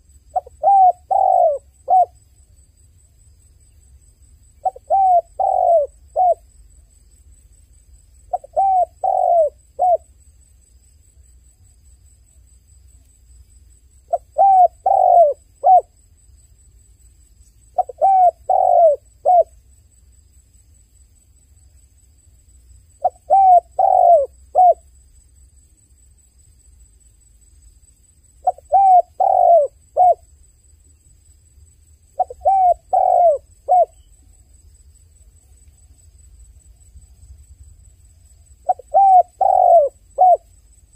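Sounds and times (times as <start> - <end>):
dove cooing: 0.3 - 2.2, 4.6 - 6.4, 8.3 - 10.0, 14.1 - 15.9, 17.8 - 19.5, 23.0 - 24.8, 28.4 - 30.2, 32.2 - 34.1, 38.6 - 40.5.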